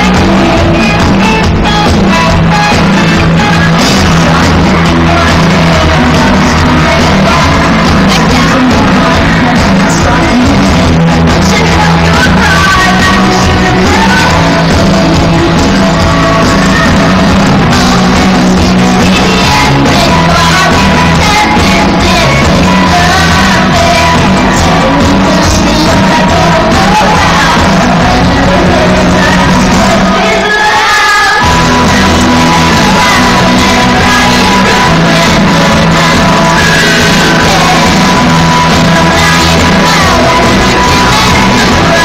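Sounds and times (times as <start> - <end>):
live pop-rock band: 0.0 - 42.0
woman singing lead vocal: 0.0 - 42.0.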